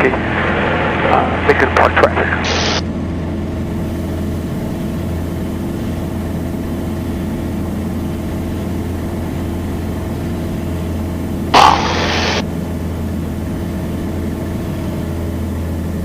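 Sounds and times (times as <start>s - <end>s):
airplane engine and propeller droning: 0.0s - 16.0s.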